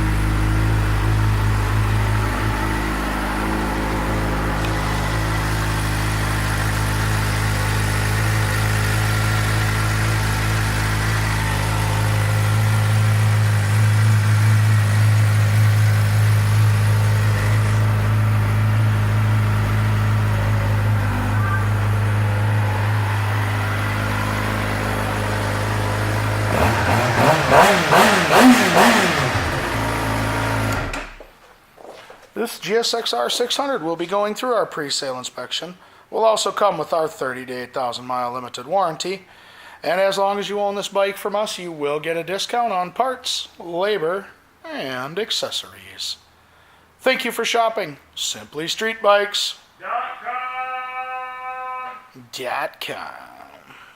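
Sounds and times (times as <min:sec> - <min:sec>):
motorcycle engine idling: 0:00.0 - 0:31.0
engine revving: 0:00.0 - 0:31.2.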